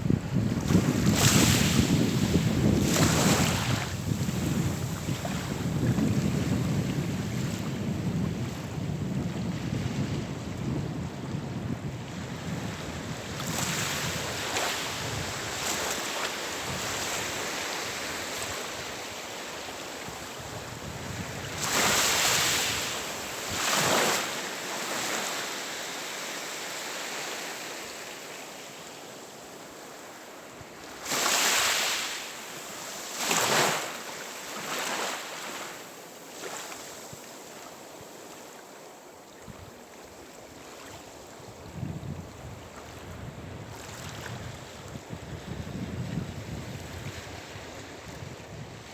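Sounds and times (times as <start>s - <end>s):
waves breaking: 0.7s - 6.0s.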